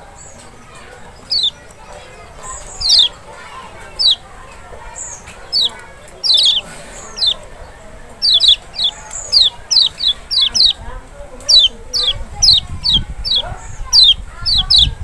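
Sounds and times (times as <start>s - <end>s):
bird calling sharp high notes: 1.1s - 4.3s, 4.9s - 7.5s, 8.2s - 10.8s.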